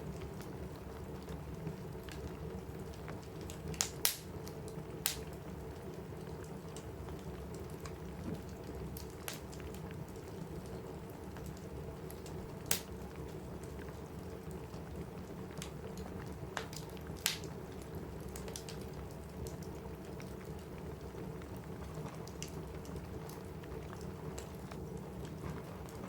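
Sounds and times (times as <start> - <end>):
rain drumming on a roof: 0.0 - 26.0
wood fire crackling: 0.0 - 26.0
sharp fire pops: 3.8 - 4.3, 12.7 - 12.9.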